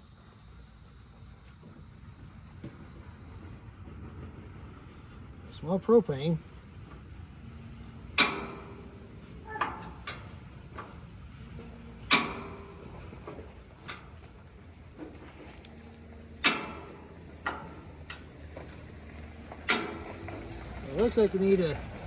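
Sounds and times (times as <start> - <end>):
griddle igniter clicking: 7.8 - 22.0.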